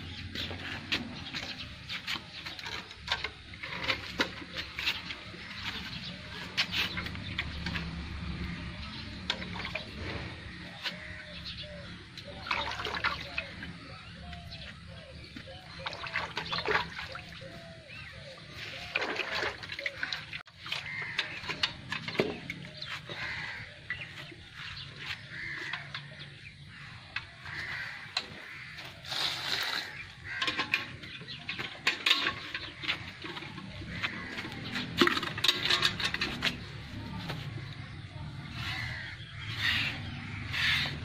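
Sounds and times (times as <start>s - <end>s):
birds chirping and calling: 0.0s - 41.0s.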